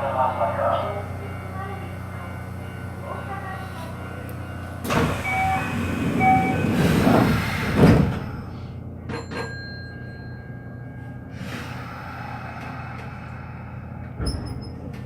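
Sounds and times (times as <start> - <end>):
train noise: 0.0 - 15.0
door-closing chime beeps: 4.8 - 6.8, 9.1 - 10.4
sliding doors shutting with thud: 4.8 - 8.4.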